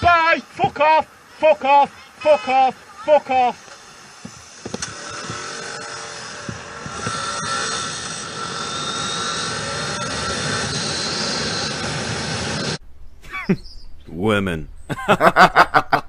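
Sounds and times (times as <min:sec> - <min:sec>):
motorcycle engine revving: 0:04.6 - 0:12.8.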